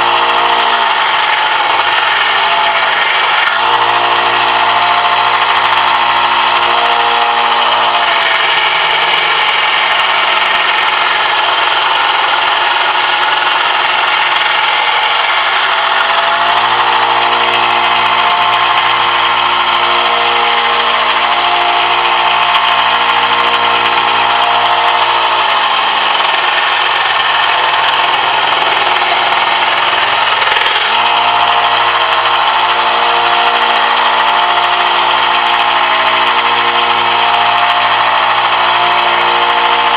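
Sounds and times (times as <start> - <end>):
electric power tool shaping brass: 0.0 - 39.9.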